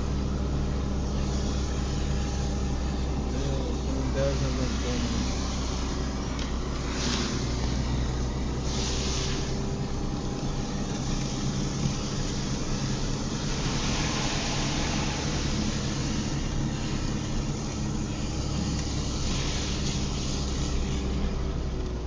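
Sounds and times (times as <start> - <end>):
engine and road hum: 0.0 - 22.0
tyres hissing on wet road: 6.8 - 21.3.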